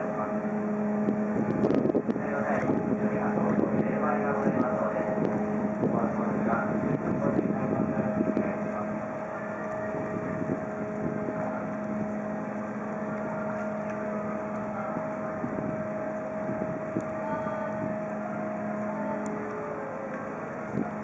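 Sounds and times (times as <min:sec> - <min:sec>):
boat engines droning: 0:00.0 - 0:21.0.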